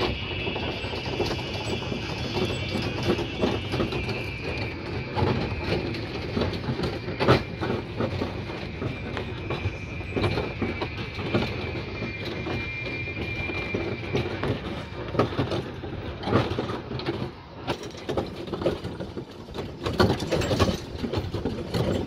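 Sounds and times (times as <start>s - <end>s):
thin steady high whine: 0.0s - 16.8s
train wheels clicking over rail joints: 0.0s - 22.0s.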